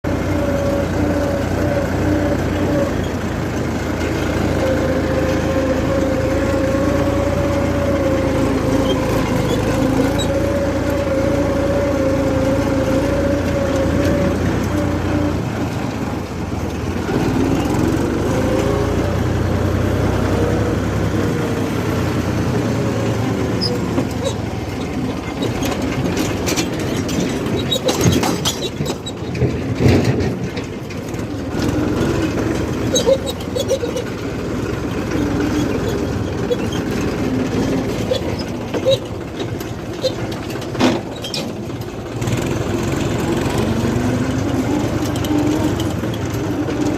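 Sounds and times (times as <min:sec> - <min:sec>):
diesel engine revving: 0:00.0 - 0:46.9
knocking and rattling: 0:23.8 - 0:34.8.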